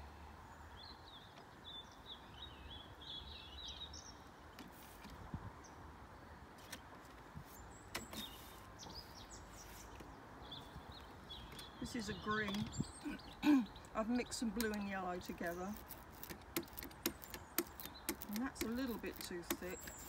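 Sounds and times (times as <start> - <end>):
outdoor background noise: 0.0 - 20.0
songbird warbling: 8.1 - 20.0.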